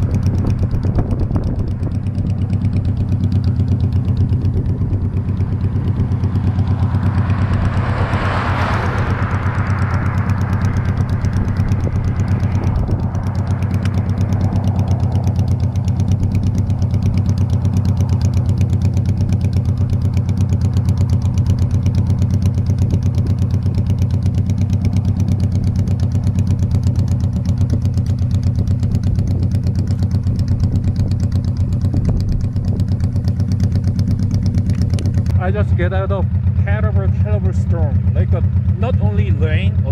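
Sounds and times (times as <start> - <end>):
wind noise: 0.0 - 3.0, 4.1 - 14.8, 27.6 - 35.3
motorcycle engine running: 0.0 - 39.9.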